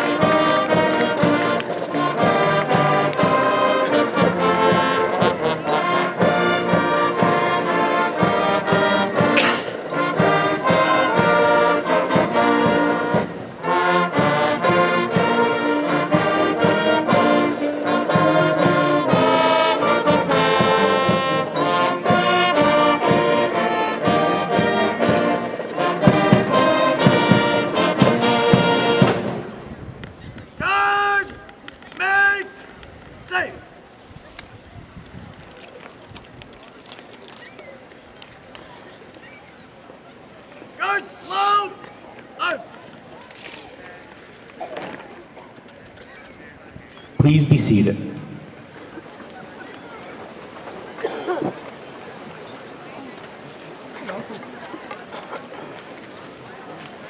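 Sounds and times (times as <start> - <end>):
military brass band playing a march: 0.0 - 30.0, 47.2 - 57.0.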